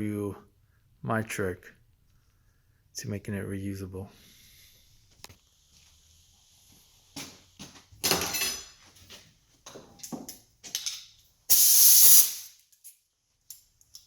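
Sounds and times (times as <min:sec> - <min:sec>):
air blow gun hissing blast: 0:11.5 - 0:12.5.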